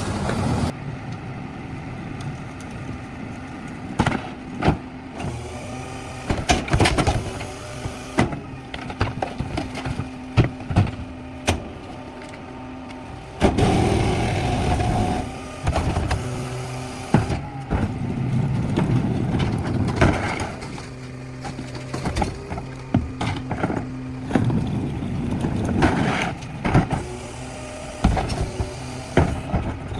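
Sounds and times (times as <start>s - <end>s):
diesel engine idling: 0.0s - 29.9s
engine whine: 0.0s - 29.9s
metal clanks and knocks: 17.1s - 27.1s.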